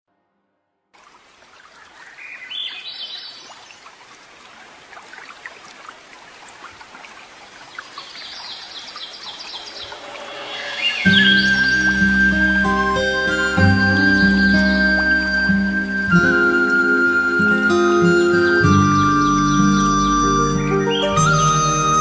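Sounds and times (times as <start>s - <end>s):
running water: 1.0s - 22.0s
bird chirping: 1.6s - 3.9s, 7.7s - 22.0s.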